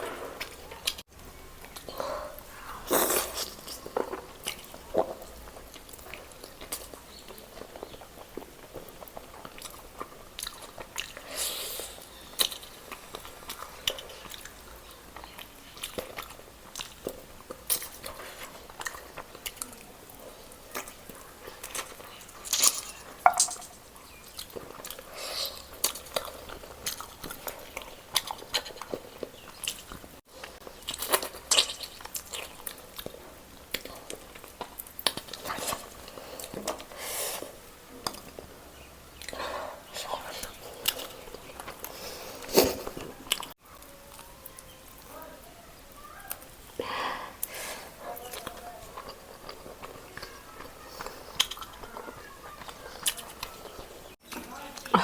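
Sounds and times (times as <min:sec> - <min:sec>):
person chewing roast chicken: 0:00.0 - 0:23.2, 0:23.8 - 0:55.0
cutlery or plate knocking: 0:23.3 - 0:23.7.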